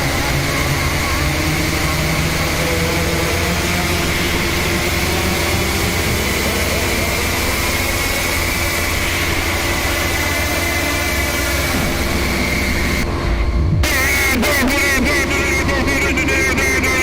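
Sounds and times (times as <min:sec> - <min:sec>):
electronic drone music: 0:00.0 - 0:17.0.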